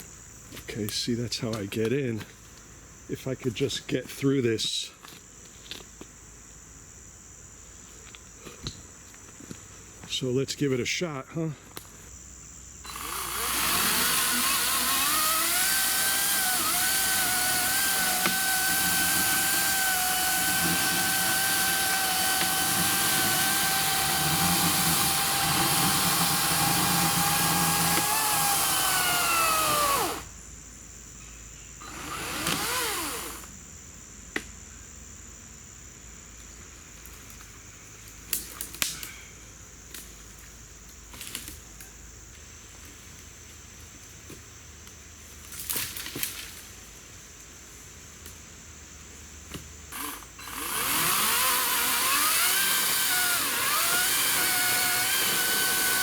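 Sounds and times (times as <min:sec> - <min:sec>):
electric chainsaw cutting log: 0:12.9 - 0:30.3, 0:31.8 - 0:33.5, 0:49.9 - 0:56.0.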